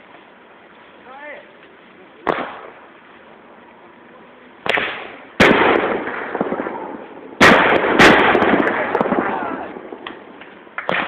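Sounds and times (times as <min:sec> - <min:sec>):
fireworks bangs: 0:02.2 - 0:03.0, 0:04.6 - 0:11.0.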